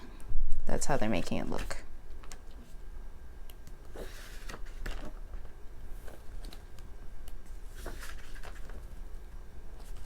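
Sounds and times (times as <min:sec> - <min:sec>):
page turning rustle: 0:03.9 - 0:09.1, 0:09.7 - 0:10.0.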